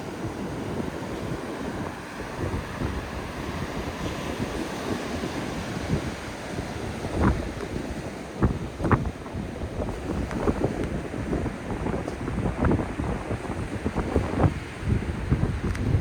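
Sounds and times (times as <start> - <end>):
heavy surf breaking: 0.0 - 16.0
wind buffeting microphone: 0.0 - 16.0.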